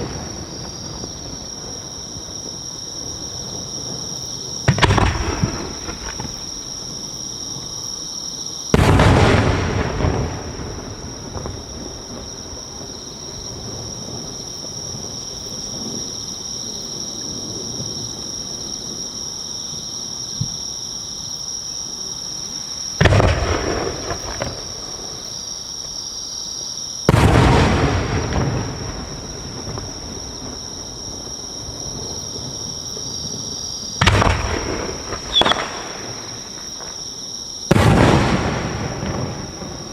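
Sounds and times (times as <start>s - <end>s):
firework shells booming: 0.0s - 1.9s, 3.5s - 7.0s, 8.7s - 14.3s, 23.0s - 25.4s, 27.0s - 39.9s.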